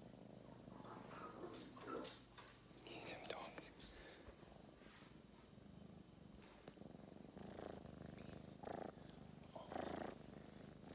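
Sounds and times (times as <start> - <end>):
kitten purring: 0.0 - 2.3, 4.5 - 10.9.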